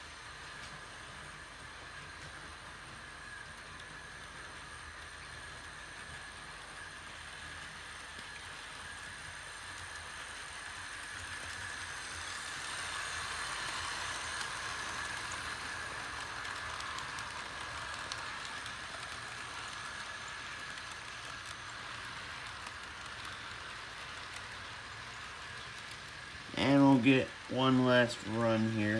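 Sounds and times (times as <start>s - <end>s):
model train motors whining: 0.0s - 28.9s
wheels on rails: 0.0s - 28.9s
wheels clicking over rail joints: 11.4s - 28.9s.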